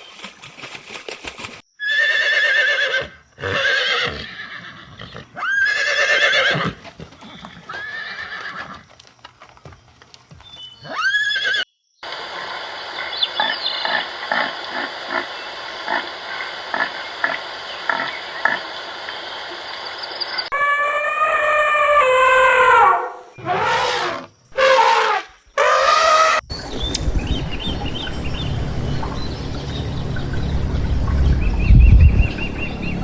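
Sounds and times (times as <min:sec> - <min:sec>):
horse whinnying: 0:01.8 - 0:08.8, 0:10.8 - 0:11.6, 0:20.6 - 0:26.4.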